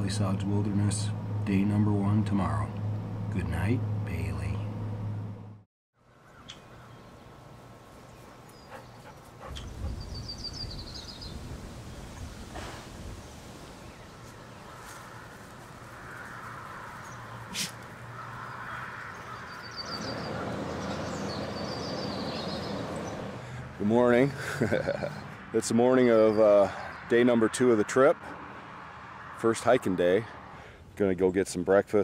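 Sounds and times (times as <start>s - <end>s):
birds chirping in high trills: 6.0s - 12.3s, 13.7s - 23.5s.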